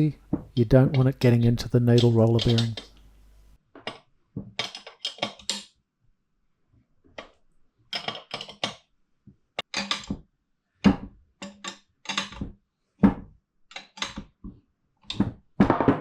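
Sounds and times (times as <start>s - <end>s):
metal tools clinking and scraping: 1.9s - 3.0s.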